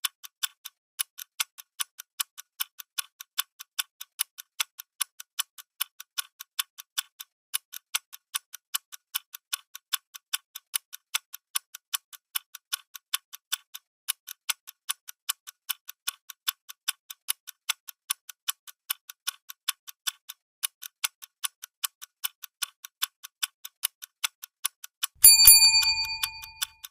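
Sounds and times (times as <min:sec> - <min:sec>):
bright ringing chime: 0:25.2 - 0:26.7
clock ticking: 0:25.2 - 0:26.9.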